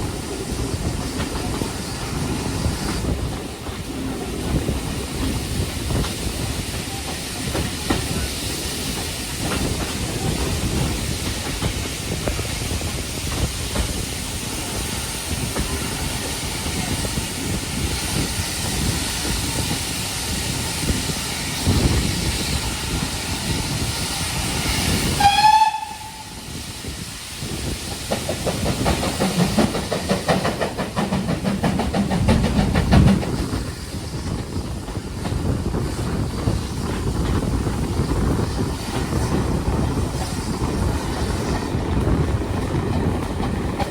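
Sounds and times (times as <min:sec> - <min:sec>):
steam train hissing and rumbling: 0:00.0 - 0:43.9
steam whistle blast: 0:25.2 - 0:26.5.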